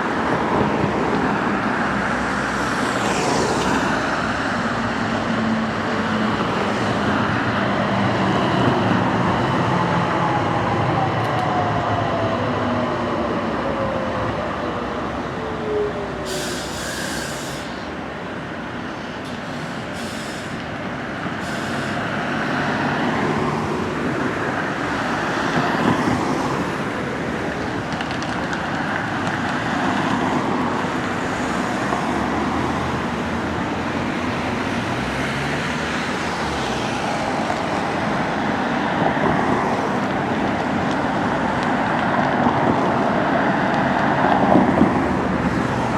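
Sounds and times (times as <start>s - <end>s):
road traffic noise: 0.0s - 45.9s
tram rumbling on rails: 0.0s - 45.9s.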